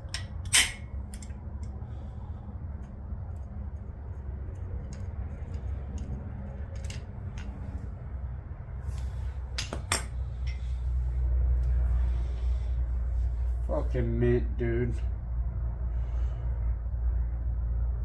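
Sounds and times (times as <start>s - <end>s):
metallic clicks of hand tools: 0.0s - 1.7s
steady low hum: 0.0s - 18.0s.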